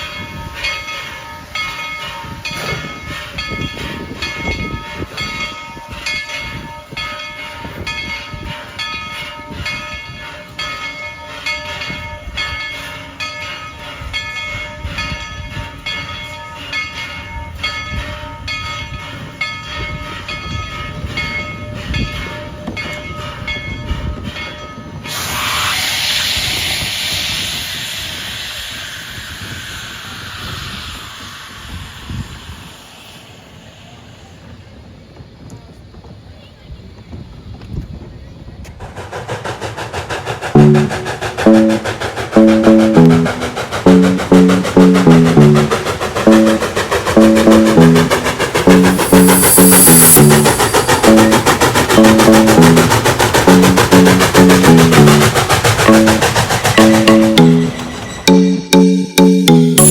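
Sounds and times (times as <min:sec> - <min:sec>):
steam train running: 0:00.0 - 0:59.9
steam hissing: 0:25.1 - 0:35.0, 0:38.6 - 0:58.8
ringing tones: 0:40.6 - 0:59.9.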